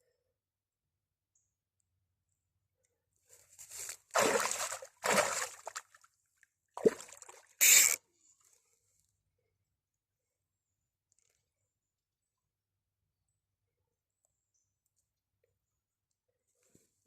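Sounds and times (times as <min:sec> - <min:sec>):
water splashing and sloshing: 0:03.8 - 0:06.2, 0:06.8 - 0:08.6.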